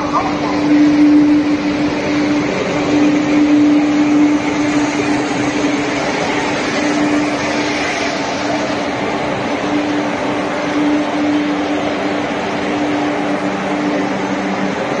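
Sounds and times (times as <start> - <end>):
electric train rushing hum: 0.0 - 15.0
low hum: 0.0 - 15.0.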